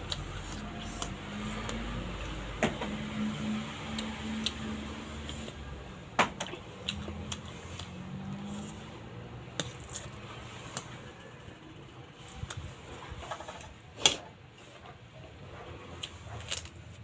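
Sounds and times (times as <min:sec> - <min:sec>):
person chewing food: 0:00.0 - 0:05.7, 0:06.4 - 0:11.0, 0:15.8 - 0:17.0.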